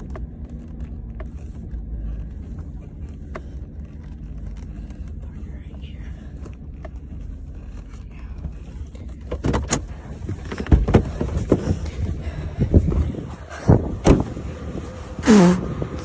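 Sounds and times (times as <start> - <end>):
vehicle engine running: 0.0 - 16.0
loud knocks and clunks: 9.3 - 11.8.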